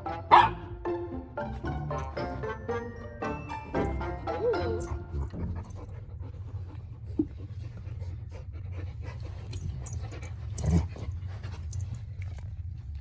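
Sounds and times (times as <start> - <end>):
dogs panting and scuffling: 4.9 - 13.0.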